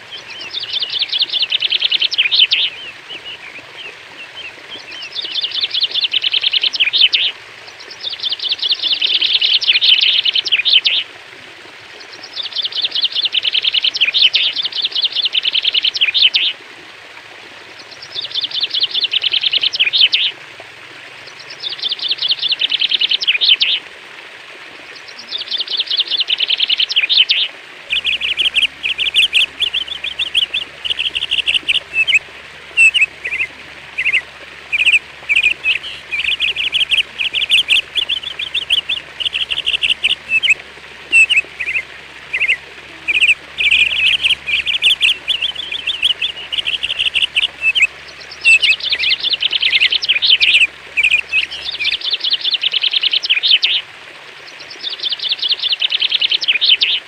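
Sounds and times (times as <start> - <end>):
songbird singing: 0.0 - 11.1, 11.9 - 16.6, 17.7 - 20.4, 21.2 - 23.9, 24.9 - 53.8, 54.4 - 57.0
faint low hum: 27.8 - 52.1.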